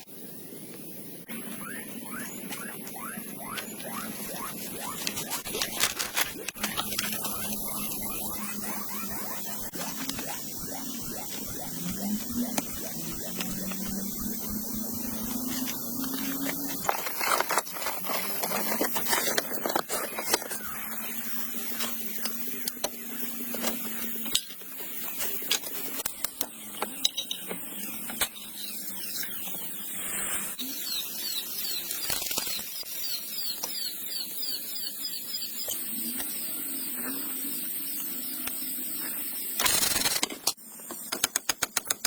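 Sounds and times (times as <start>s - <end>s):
high squeaky chirps: 1.3s - 16.4s.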